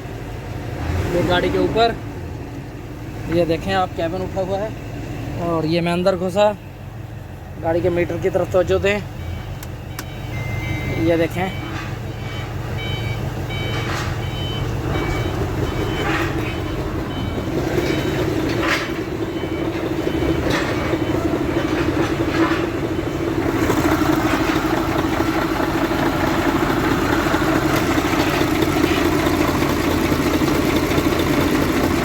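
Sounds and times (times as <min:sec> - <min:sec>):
diesel truck engine running: 0:00.0 - 0:32.0
short dashboard warning beeps: 0:08.8 - 0:21.7.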